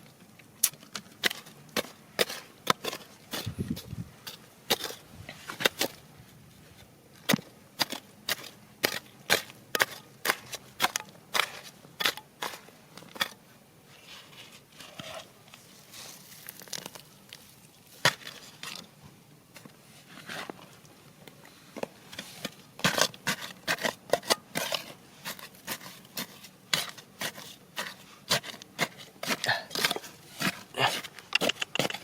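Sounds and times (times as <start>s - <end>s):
digging tool striking rock: 0.6s - 4.0s, 4.7s - 5.0s, 7.2s - 13.4s, 18.0s - 18.4s, 22.5s - 32.0s
tool scraping rock: 14.0s - 18.9s, 22.1s - 32.0s.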